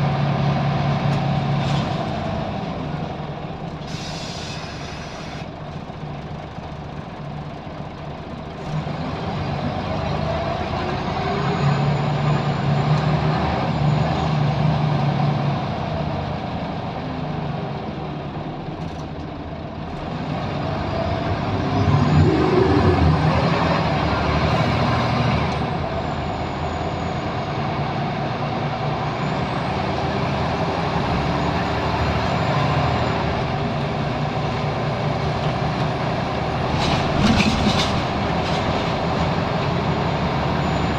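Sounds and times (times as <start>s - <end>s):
bus engine running under load: 0.0s - 40.9s.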